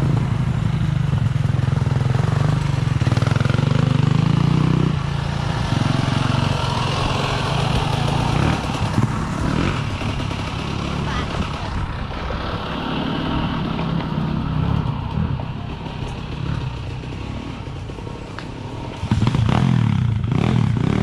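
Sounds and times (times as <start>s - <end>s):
motorcycle engines running: 0.0s - 21.0s.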